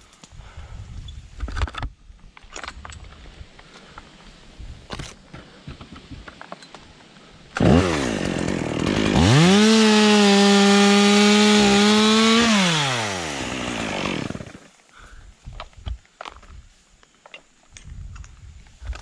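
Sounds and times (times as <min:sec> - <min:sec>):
chainsaw starting and revving: 0:07.6 - 0:14.8.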